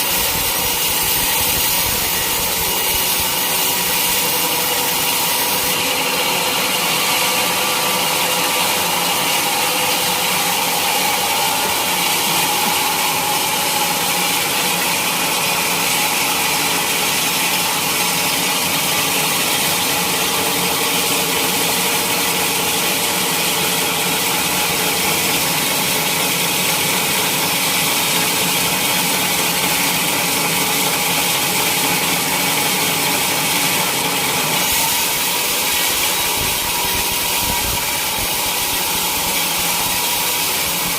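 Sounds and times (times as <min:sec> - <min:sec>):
motor running: 0:00.0 - 0:20.1
saw cutting through log: 0:00.0 - 0:40.9.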